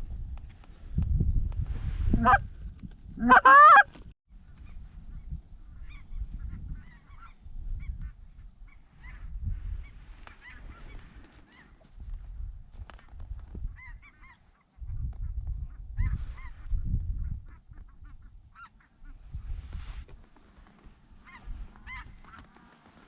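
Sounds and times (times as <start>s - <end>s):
wind rumble on microphone: 0.0s - 23.0s
geese honking: 2.2s - 2.4s, 3.2s - 3.9s.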